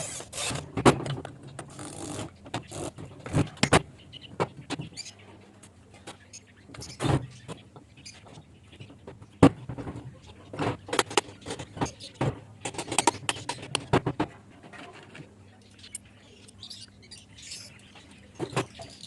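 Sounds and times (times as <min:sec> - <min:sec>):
sharp clicks and knocks: 0:05.6 - 0:15.3.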